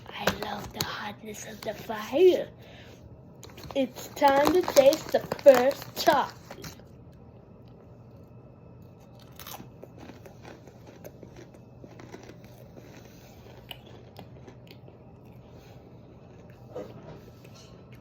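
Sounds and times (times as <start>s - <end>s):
chip crunching: 3.4s - 6.8s, 9.0s - 15.4s, 16.1s - 16.7s
chewing: 9.0s - 18.0s.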